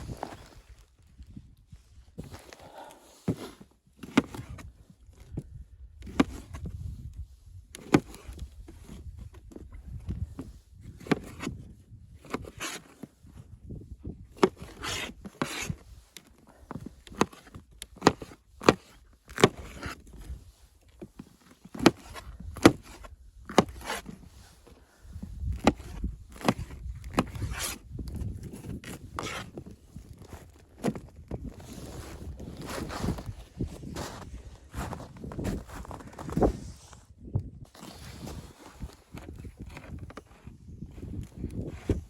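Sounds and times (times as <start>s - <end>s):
low scuffing: 31.6s - 37.1s.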